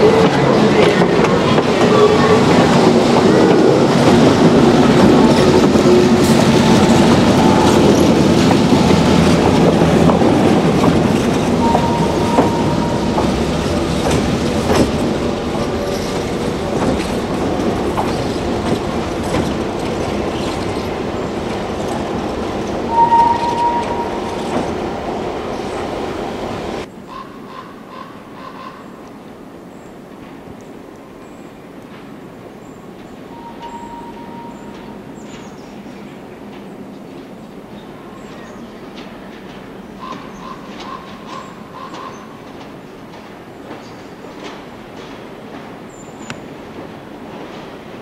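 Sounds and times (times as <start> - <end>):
train wheels clacking over rails: 0.0 - 26.9, 34.6 - 48.0
high wheel squeals: 22.9 - 24.5.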